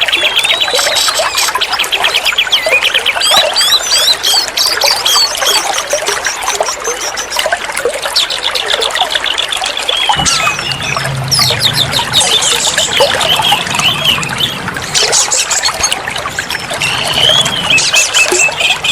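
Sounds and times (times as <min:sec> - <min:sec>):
bird song: 0:00.0 - 0:18.9
low hum: 0:10.2 - 0:14.9.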